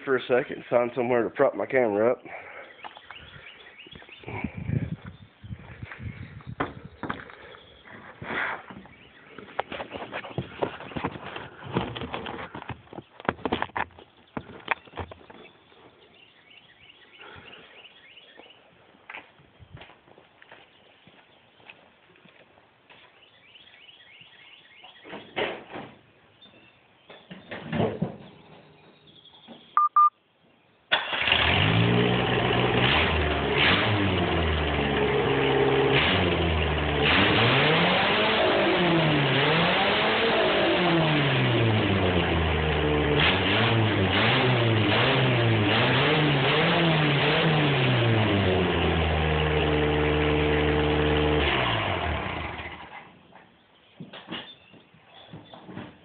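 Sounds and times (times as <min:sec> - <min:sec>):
knocks and thumps: 0:06.5 - 0:07.4, 0:09.5 - 0:15.4
car engine cranking and revving: 0:30.9 - 0:53.1.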